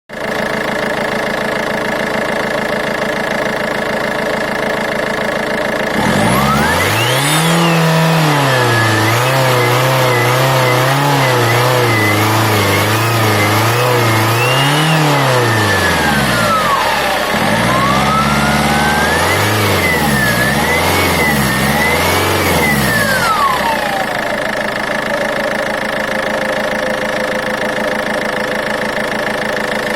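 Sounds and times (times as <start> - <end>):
car engine revving: 4.7 - 27.8
turbocharger whistle: 5.9 - 27.5.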